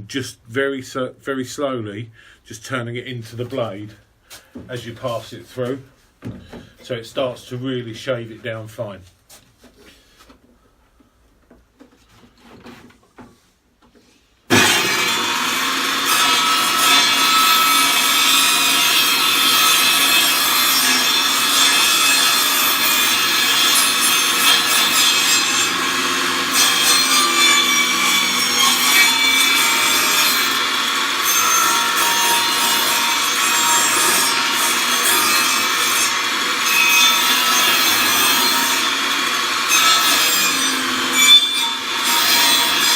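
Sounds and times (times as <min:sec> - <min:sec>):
table saw cutting wood: 0:14.5 - 0:42.9.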